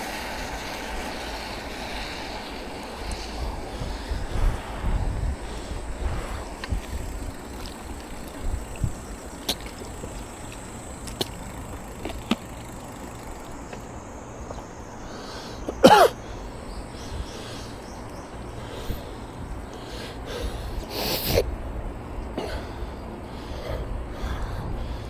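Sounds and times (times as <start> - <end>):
wind and bicycle riding noise: 0.0 - 25.0
faint clicks: 6.6 - 13.9.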